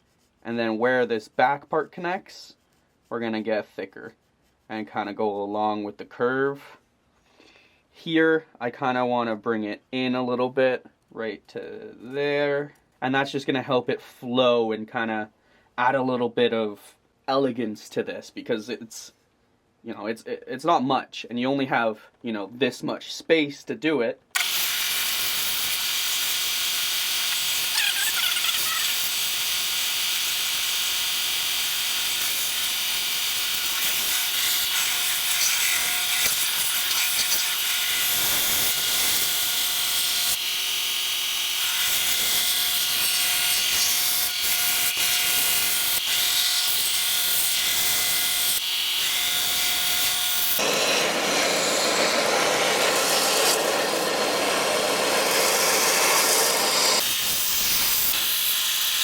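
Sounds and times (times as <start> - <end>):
belt sander sanding wood: 24.4 - 40.4, 41.7 - 59.0.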